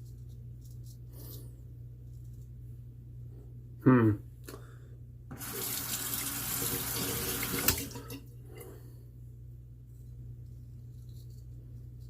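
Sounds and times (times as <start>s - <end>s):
tap water running: 5.3s - 8.2s.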